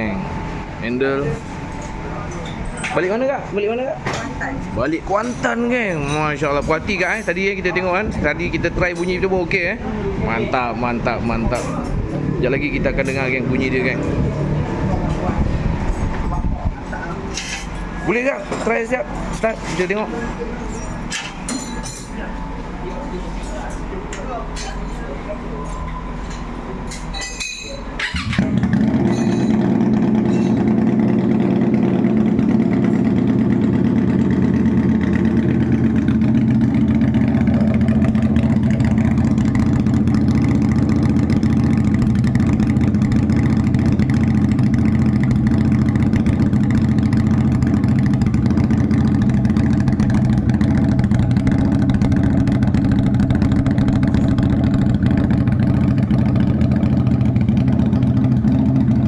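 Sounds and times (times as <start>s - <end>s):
motorcycle idling: 0.0s - 59.0s.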